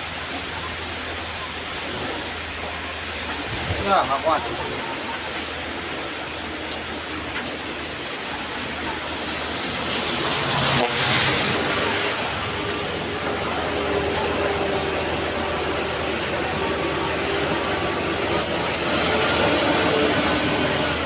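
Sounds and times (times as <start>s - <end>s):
road noise: 0.0s - 21.0s
thin high whistle: 10.4s - 21.0s.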